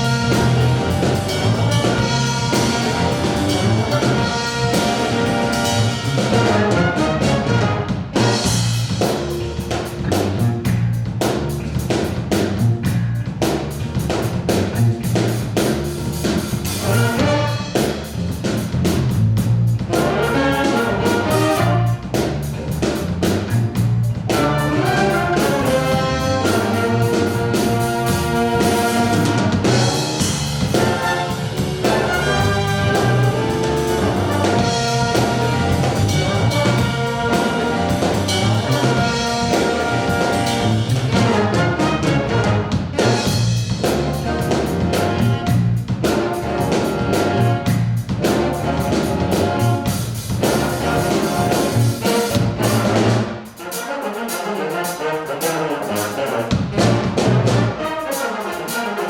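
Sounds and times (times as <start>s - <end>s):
trumpets and trombones: 0.0s - 9.2s, 16.5s - 18.2s, 19.8s - 22.4s, 24.2s - 59.0s
bass and drums: 0.0s - 53.9s, 54.5s - 58.9s
big band playing funk: 0.0s - 59.0s.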